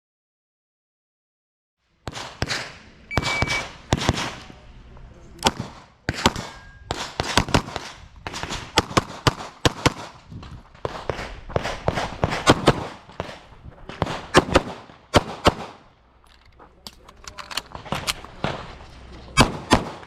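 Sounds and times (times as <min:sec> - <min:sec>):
rapid handgun shots with echo: 0:02.0 - 0:04.6, 0:05.4 - 0:10.2, 0:10.8 - 0:15.8, 0:19.4 - 0:20.0.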